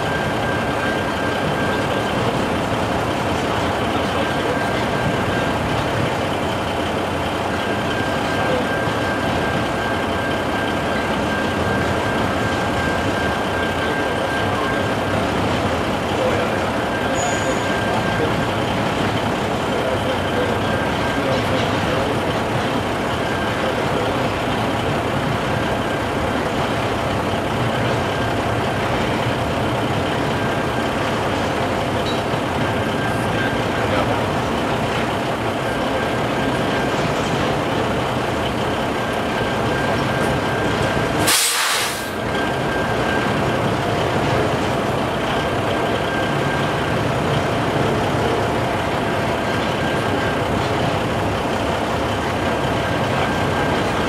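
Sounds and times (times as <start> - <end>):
freight train rumbling: 0.0 - 54.0
truck idling: 0.0 - 54.0
sharp hiss of air: 41.2 - 42.2.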